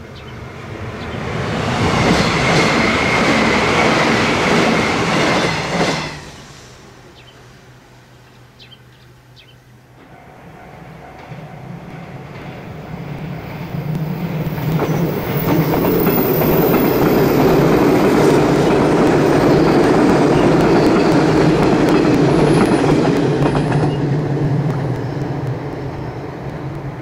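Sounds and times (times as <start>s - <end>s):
train passing on track: 0.0s - 27.0s
wheels clattering on rails: 11.1s - 27.0s.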